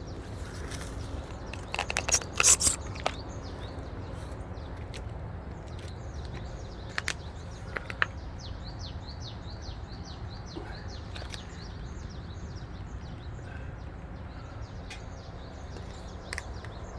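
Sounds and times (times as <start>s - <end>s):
small bird chirping: 0.0s - 4.9s, 5.6s - 16.9s
sharp clicks: 1.5s - 3.2s.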